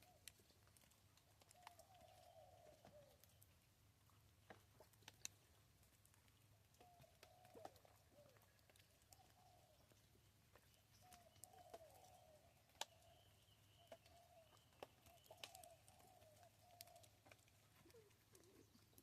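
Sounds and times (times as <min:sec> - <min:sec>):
bird cooing: 0:00.0 - 0:00.3, 0:01.4 - 0:03.4, 0:06.8 - 0:10.0, 0:11.0 - 0:19.0.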